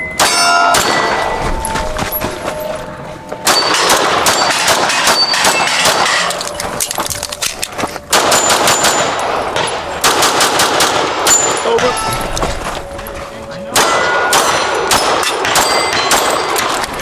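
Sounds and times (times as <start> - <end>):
steel targets ringing: 0.0 - 17.0
pistol shots: 3.4 - 6.9, 8.1 - 12.0, 13.8 - 17.0.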